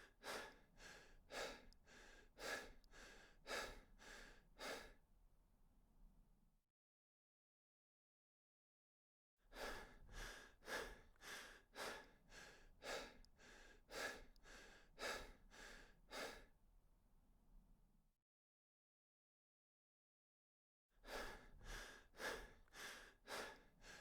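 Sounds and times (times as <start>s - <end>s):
person breathing hard: 0.0s - 5.0s, 9.5s - 16.5s, 21.0s - 24.0s.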